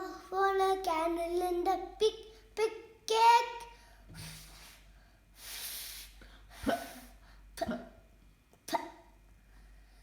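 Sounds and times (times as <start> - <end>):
child blowing a puff: 4.1 - 7.2.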